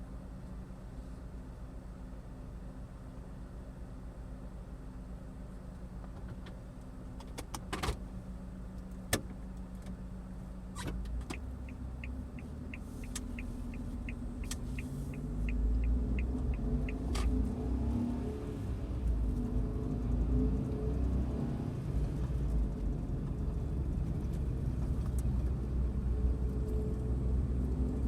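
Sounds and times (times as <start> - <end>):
turn signal relay ticking: 11.1 - 17.4.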